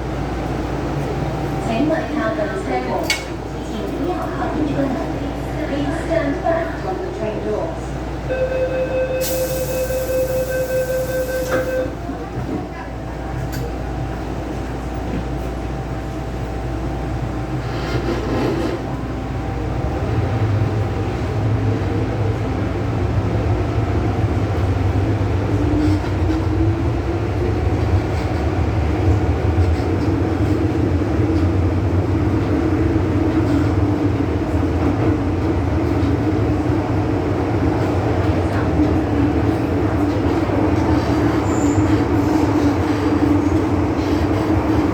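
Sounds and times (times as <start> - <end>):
electric train rumble: 0.0 - 44.9.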